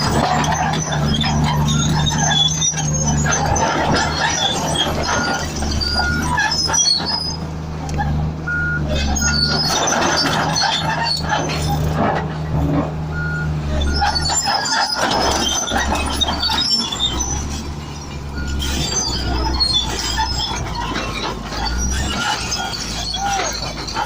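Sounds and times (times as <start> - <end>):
bulldozer diesel engine running: 0.0 - 24.0
steel tracks squeaking: 0.0 - 24.0
short beeps: 8.5 - 8.9, 18.4 - 18.9.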